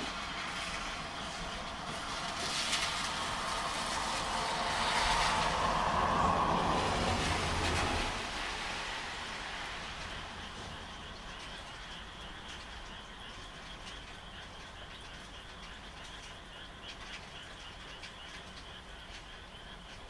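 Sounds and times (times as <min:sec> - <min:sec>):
loud rain: 0:00.0 - 0:16.3
frogs calling: 0:00.0 - 0:20.0
frog clicking calls: 0:10.4 - 0:20.0.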